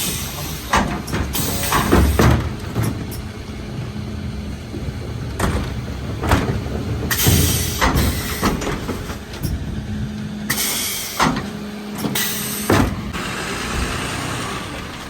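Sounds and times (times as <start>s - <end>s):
air hiss bursts: 10.5s - 11.3s.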